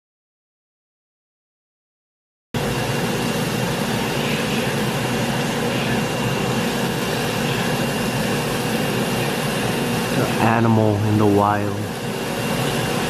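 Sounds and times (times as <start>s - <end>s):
mechanical drone with high whine: 2.6s - 13.0s.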